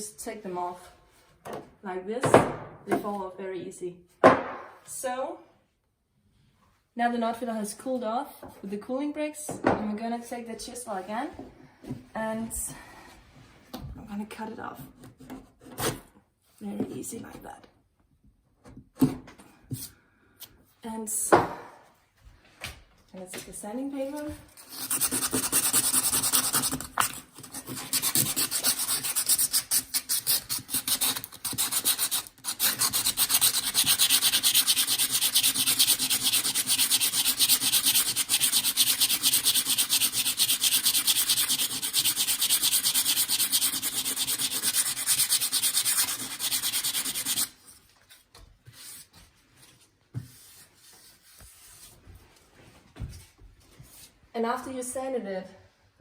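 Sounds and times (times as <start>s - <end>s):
sandpaper sanding wood: 24.6s - 47.6s.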